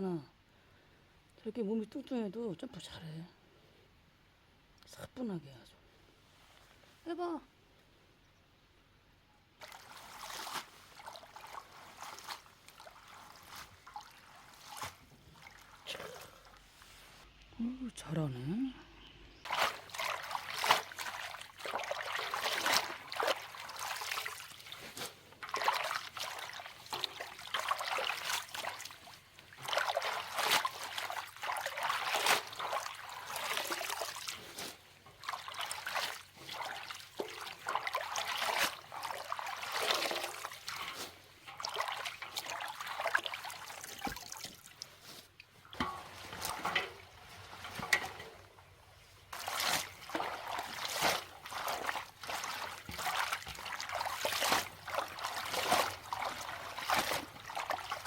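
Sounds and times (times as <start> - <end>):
water trickling and splashing: 9.6 - 16.9, 19.3 - 58.0.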